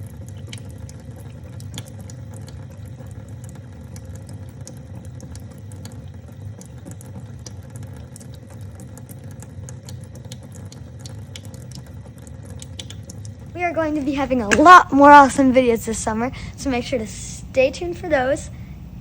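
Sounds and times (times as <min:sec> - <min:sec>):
drip-like ticks: 0:00.0 - 0:13.5
water trickling: 0:00.0 - 0:19.0
low hum: 0:11.0 - 0:19.0.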